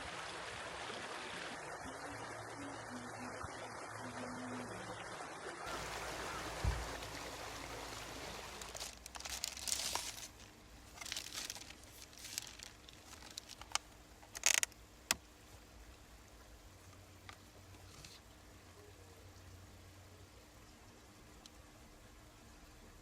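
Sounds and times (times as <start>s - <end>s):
rustling and crinkling: 6.6s - 15.2s.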